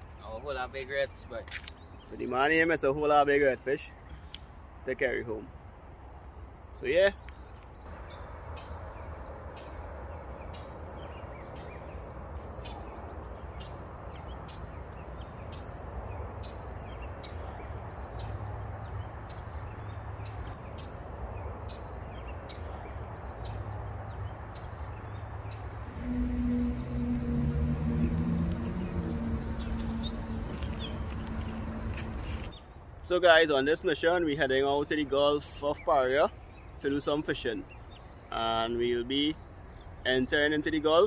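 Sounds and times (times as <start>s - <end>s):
small birds chirping: 0.1s - 41.0s
low multi-tone hum: 25.7s - 32.6s
low steady rumble: 25.9s - 32.5s.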